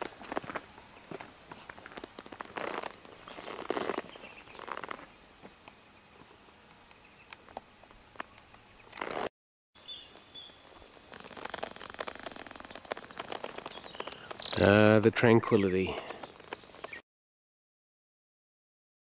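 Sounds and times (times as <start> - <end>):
scattered rustles and clicks: 0.0 - 5.1, 10.8 - 17.0
birds chirping: 0.0 - 17.0.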